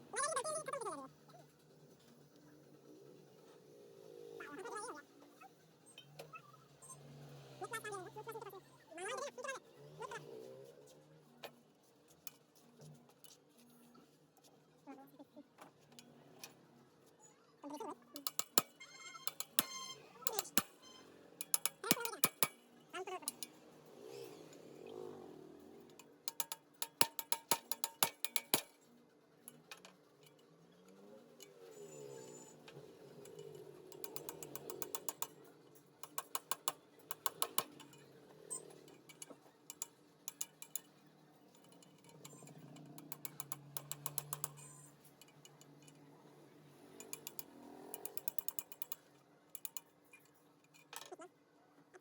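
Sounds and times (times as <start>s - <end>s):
hand tool ratcheting: 18.2s - 22.6s, 23.2s - 23.5s, 26.0s - 28.7s, 33.1s - 35.4s, 36.0s - 40.9s, 41.6s - 46.0s, 47.0s - 49.0s.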